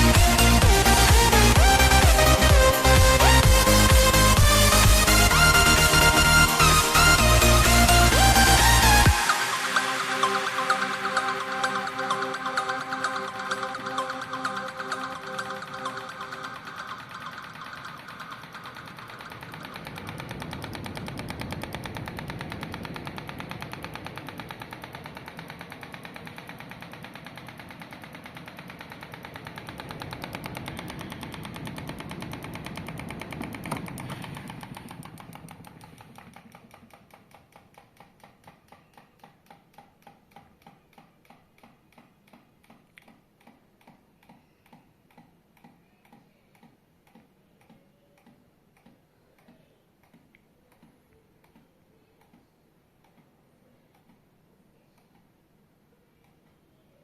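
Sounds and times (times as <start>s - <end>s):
electric fan clattering: 0.0s - 42.9s.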